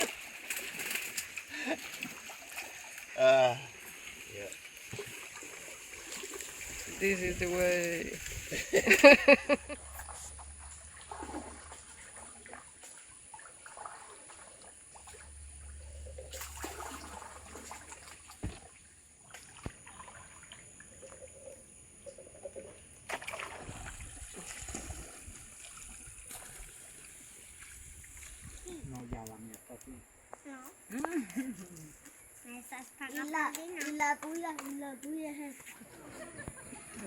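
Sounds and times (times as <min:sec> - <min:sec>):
water trickling and splashing: 0:00.0 - 0:37.0
knock on boat: 0:18.4 - 0:18.7.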